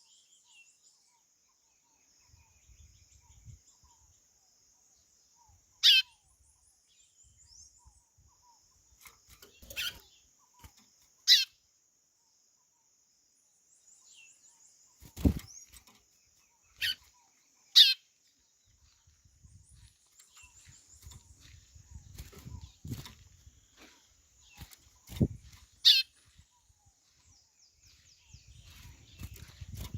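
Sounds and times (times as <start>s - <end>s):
faint twittering: 7.4s - 29.9s.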